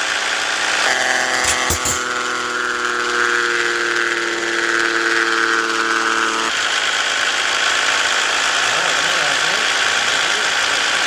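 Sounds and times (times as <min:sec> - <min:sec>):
multi-tone whine: 0:00.0 - 0:11.0
truck engine running: 0:00.0 - 0:11.0.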